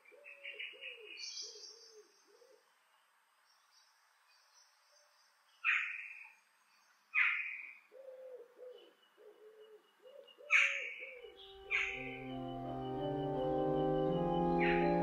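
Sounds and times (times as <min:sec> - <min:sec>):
sharp bird calls: 0:07.2 - 0:15.0
low repeated bird notes: 0:11.1 - 0:15.0
organ music: 0:11.3 - 0:15.0.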